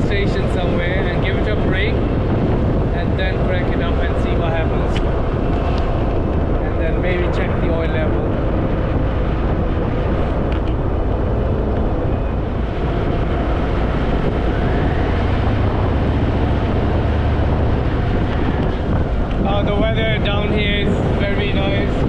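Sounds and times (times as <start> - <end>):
wind noise on microphone: 0.0 - 22.0
motorcycle engine running: 0.7 - 22.0.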